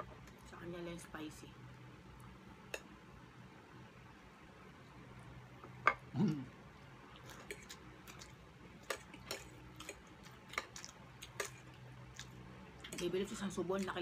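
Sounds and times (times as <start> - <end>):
people chewing: 7.1 - 14.0.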